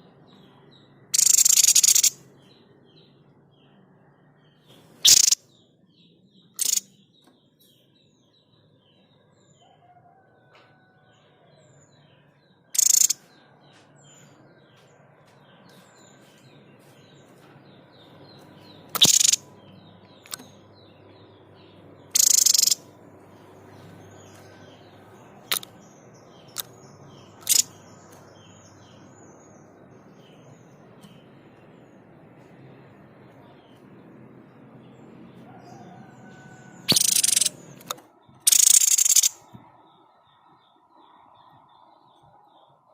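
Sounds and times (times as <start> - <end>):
faint twittering of small birds: 0.0 - 42.9
bird's sharp explosive calls: 1.2 - 2.2, 5.0 - 5.4, 6.6 - 6.8, 12.8 - 13.2, 19.0 - 19.4, 22.2 - 22.8, 27.4 - 27.7, 36.8 - 37.6, 38.5 - 39.4.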